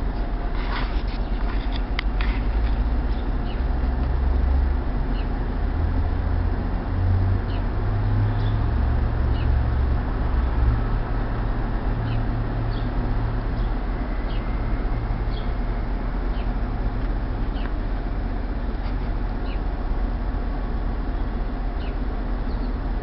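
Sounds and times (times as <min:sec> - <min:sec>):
low city rumble: 0:00.0 - 0:23.0
small birds chirping: 0:01.0 - 0:03.9, 0:05.1 - 0:05.4, 0:07.4 - 0:09.8, 0:12.0 - 0:15.6, 0:16.2 - 0:17.9, 0:18.5 - 0:19.8, 0:21.0 - 0:22.9.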